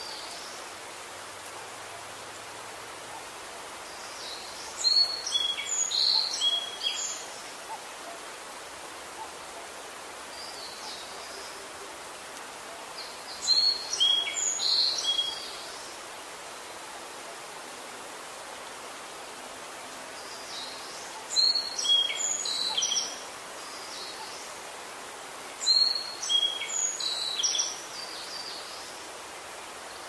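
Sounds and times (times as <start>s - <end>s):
outdoor hiss: 0.0s - 30.0s
songbird singing: 3.0s - 8.4s, 9.1s - 19.3s, 20.0s - 30.0s.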